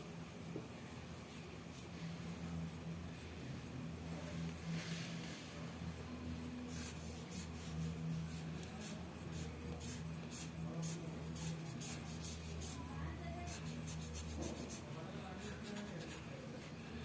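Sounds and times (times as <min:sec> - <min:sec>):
pencil scratching on paper: 0:06.7 - 0:16.4.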